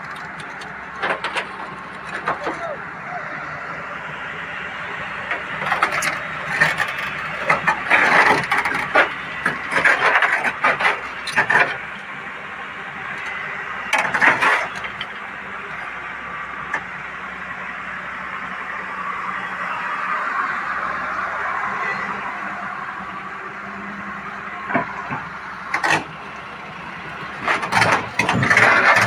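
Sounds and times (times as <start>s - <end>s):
excavator diesel engine running: 0.0s - 29.0s
sharp knocks and clanks: 0.1s - 2.6s, 27.4s - 29.0s.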